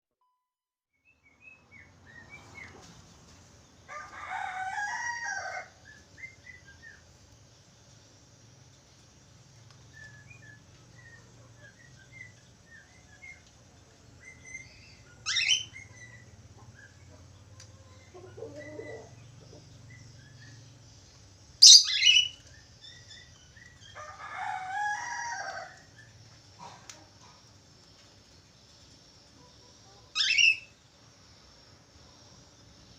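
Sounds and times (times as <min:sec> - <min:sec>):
budgerigar chirping and warbling: 0:15.3 - 0:16.2, 0:21.6 - 0:22.3, 0:30.2 - 0:30.7.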